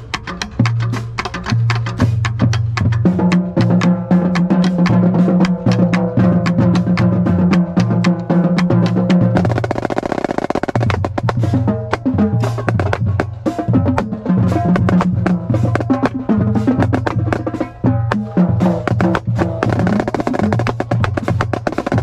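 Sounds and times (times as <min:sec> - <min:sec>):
low sustained drum tones: 0:00.0 - 0:22.0
marching snare drum: 0:00.0 - 0:22.0.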